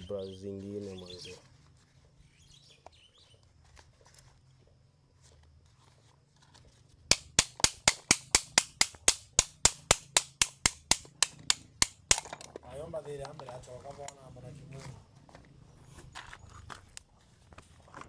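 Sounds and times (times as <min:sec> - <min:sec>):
quick sharp clicks: 0:07.1 - 0:12.3.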